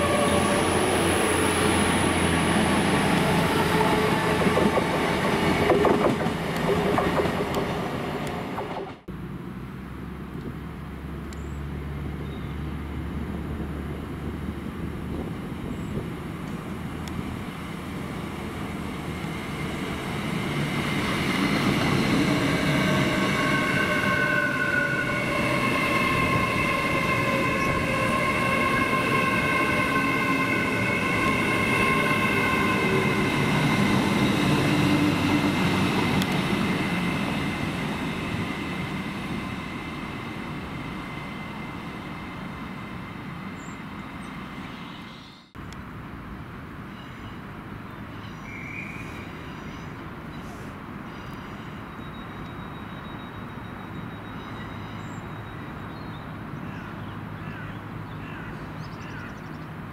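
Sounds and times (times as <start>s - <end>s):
train passing: 0.0s - 9.4s, 10.9s - 59.9s
rumble of train wheels: 0.0s - 59.9s
high-pitched whining tones: 19.1s - 45.6s.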